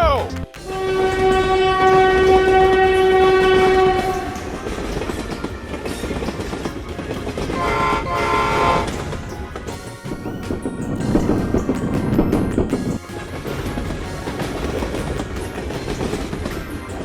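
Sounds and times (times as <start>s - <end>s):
train rumbling along rails: 0.6s - 17.0s
train horn blast: 0.7s - 4.6s, 7.6s - 9.1s.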